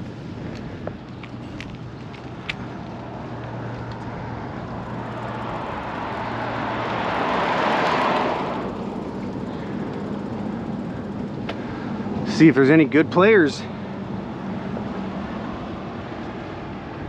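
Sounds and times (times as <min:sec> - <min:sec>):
car driving past: 0:04.6 - 0:11.1.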